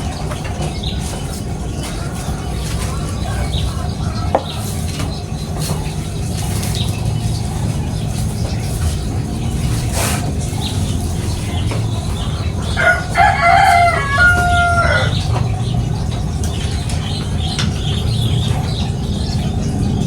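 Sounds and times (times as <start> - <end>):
rooster crowing: 12.6 - 15.5.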